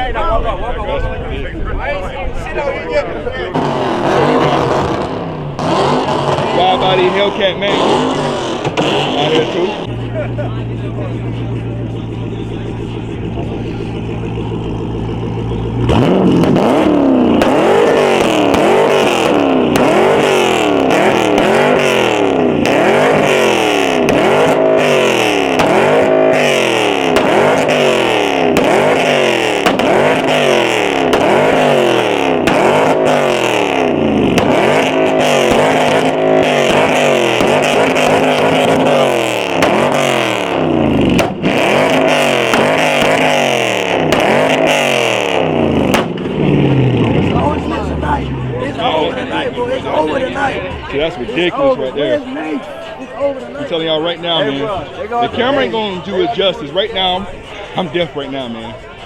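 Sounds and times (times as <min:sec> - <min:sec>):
car engine revving hard: 0:03.4 - 0:52.1.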